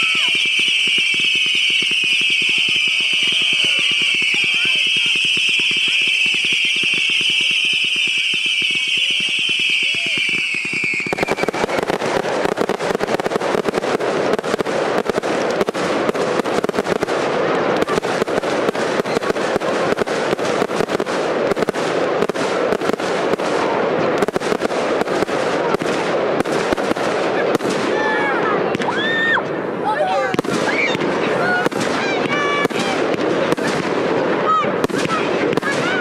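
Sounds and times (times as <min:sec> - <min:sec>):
firework whistle: 0:00.0 - 0:13.8
fireworks popping and crackling: 0:00.0 - 0:36.0.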